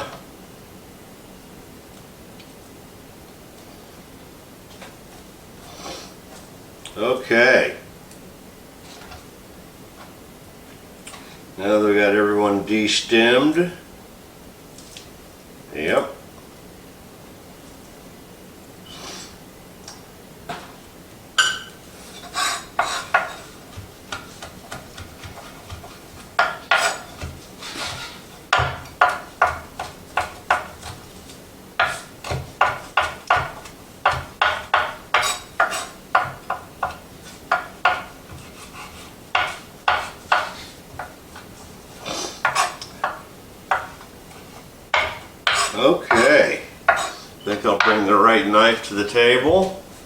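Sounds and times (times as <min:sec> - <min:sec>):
knife chopping herbs on a board: 0:22.1 - 0:41.8, 0:42.4 - 0:46.3, 0:46.9 - 0:47.2.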